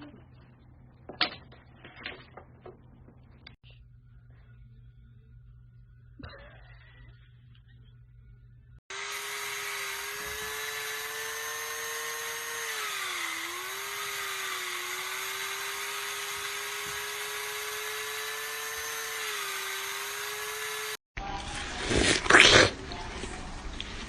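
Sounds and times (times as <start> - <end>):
small electric motor whining: 8.9 - 21.0.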